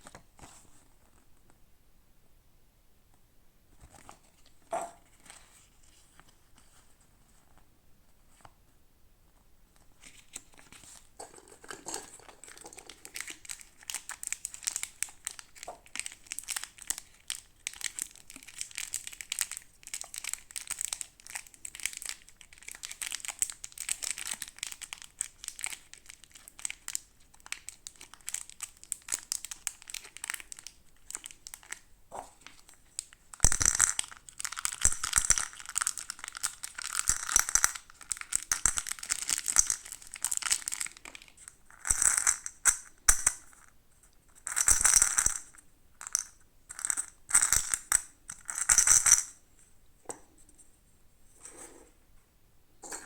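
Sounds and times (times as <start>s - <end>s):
toy packaging crinkling: 10.1s - 42.9s.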